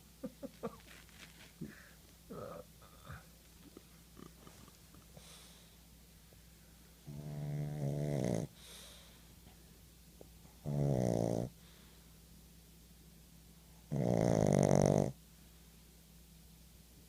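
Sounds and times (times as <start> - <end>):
faint breaths: 0.8 - 3.4, 4.3 - 7.1, 8.5 - 9.9, 11.5 - 12.3
dog snoring: 7.0 - 8.6, 10.6 - 11.6, 13.9 - 15.2.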